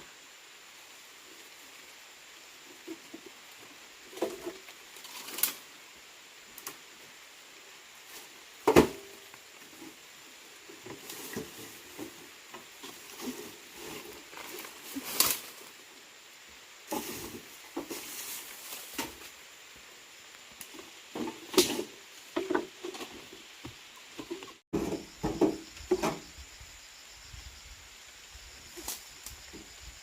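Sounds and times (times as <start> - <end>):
rustling: 10.8 - 15.8, 16.9 - 19.4.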